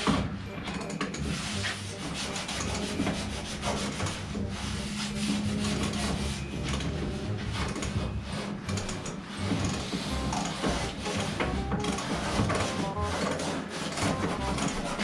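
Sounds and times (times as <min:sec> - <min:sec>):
sanding on sheet steel: 0:01.3 - 0:06.6, 0:09.3 - 0:15.0.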